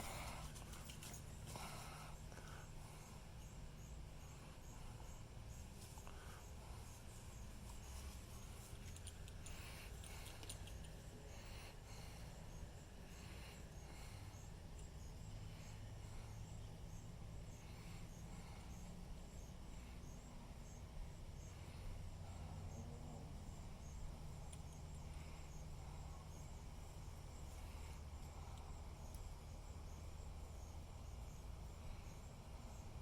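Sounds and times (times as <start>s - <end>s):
soft rustles: 0.0s - 1.8s
crickets chirping: 0.0s - 33.0s
low steady hum: 0.0s - 33.0s.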